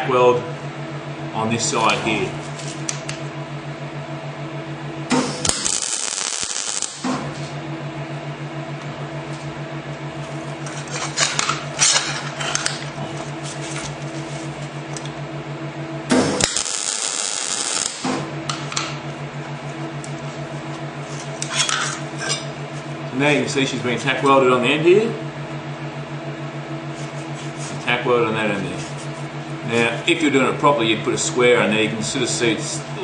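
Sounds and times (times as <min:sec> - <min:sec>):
electrical hum: 0:00.0 - 0:33.0
welding arc crackle and hiss: 0:05.1 - 0:07.5, 0:16.1 - 0:18.6.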